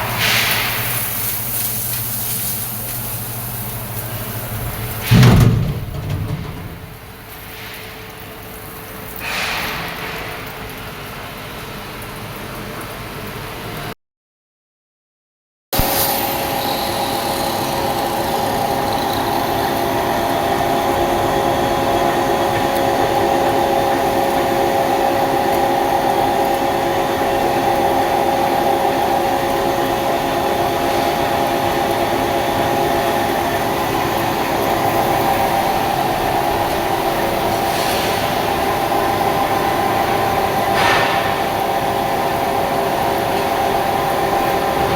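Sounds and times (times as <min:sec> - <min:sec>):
lathe machine hum: 0:16.4 - 0:44.9.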